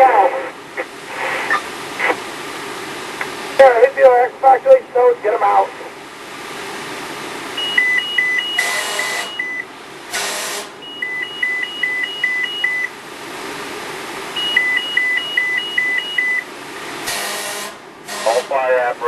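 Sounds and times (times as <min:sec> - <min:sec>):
radio static bursts: 0:00.0 - 0:02.3, 0:03.2 - 0:05.9, 0:08.5 - 0:09.5, 0:18.1 - 0:19.0
alternating high and low beeps: 0:07.6 - 0:09.7, 0:10.8 - 0:12.9, 0:14.4 - 0:16.5.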